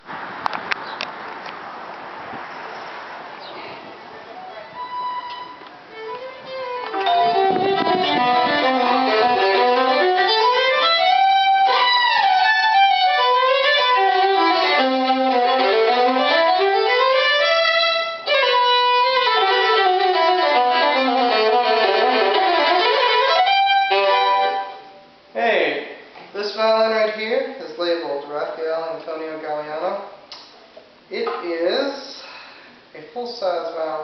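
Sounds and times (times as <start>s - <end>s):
bowed violin: 4.3s - 25.0s.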